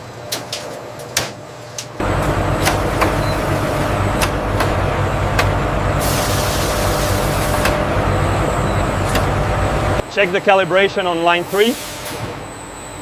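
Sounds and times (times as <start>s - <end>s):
machinery rumble: 2.0s - 12.6s
machine clicks and knocks: 2.1s - 5.6s.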